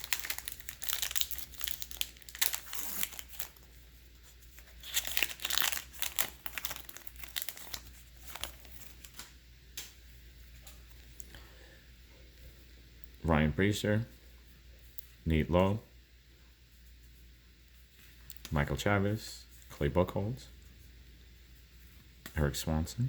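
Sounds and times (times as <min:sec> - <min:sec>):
wrapper tearing and crinkling: 0:00.0 - 0:09.3.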